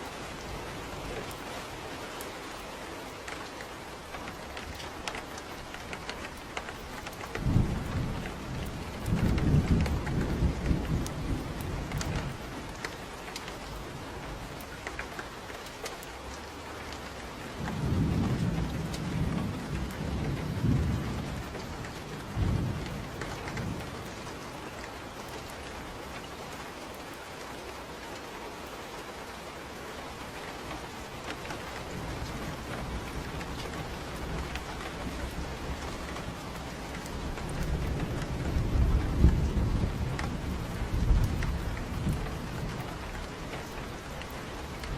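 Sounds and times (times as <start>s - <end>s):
rain falling: 0.0s - 44.9s
thunder rumbling: 4.4s - 12.9s, 17.6s - 24.5s, 31.3s - 44.9s.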